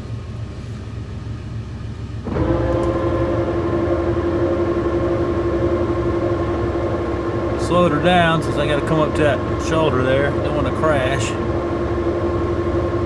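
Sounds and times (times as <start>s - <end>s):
lathe running with whine: 1.0s - 13.0s.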